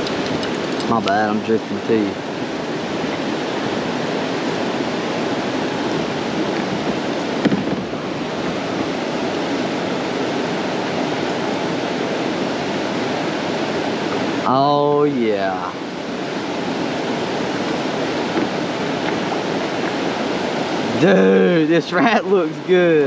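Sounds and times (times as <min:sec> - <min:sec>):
creek water rushing: 0:00.0 - 0:23.0
brief thump: 0:07.4 - 0:07.9.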